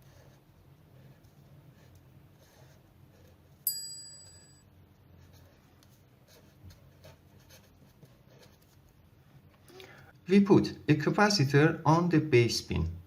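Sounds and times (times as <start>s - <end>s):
pen scratching on paper: 0.0s - 3.6s, 5.1s - 9.0s
metallic ding: 3.7s - 4.6s.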